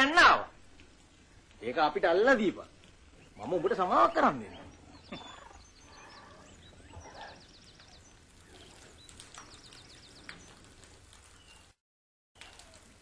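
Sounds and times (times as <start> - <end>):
faint forest ambience: 0.0 - 11.8.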